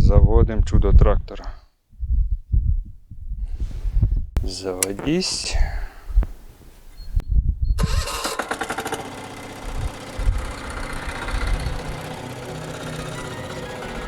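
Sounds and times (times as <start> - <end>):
diesel engine starting and idling: 7.8 - 14.0.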